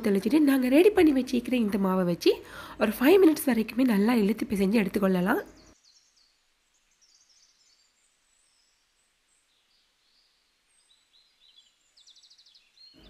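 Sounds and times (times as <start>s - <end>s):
bird chirps and trills: 5.2s - 13.0s.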